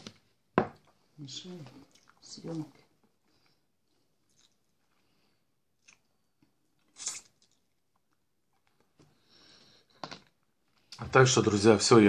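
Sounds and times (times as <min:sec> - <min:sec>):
soft chewing: 0:00.8 - 0:11.0.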